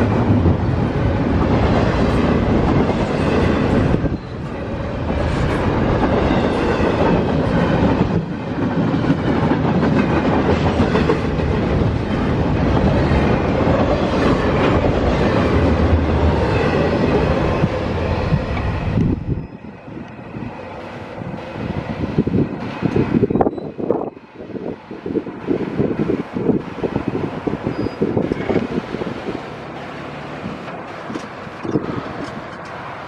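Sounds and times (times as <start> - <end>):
freight train wheels on rails: 0.0 - 33.0.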